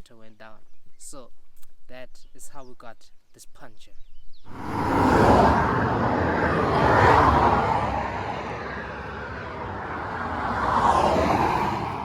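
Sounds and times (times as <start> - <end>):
vehicles passing on road: 4.5 - 12.0.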